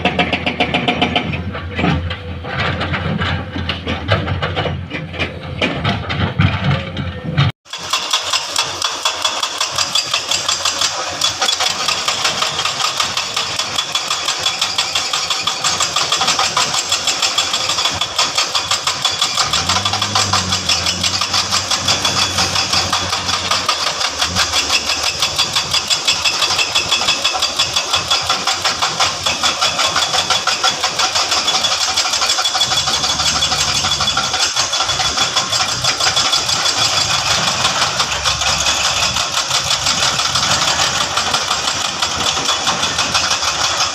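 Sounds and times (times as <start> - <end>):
diesel engine pulsing: 15.6 - 43.9
deeper engine drone: 18.7 - 27.1, 31.6 - 43.9.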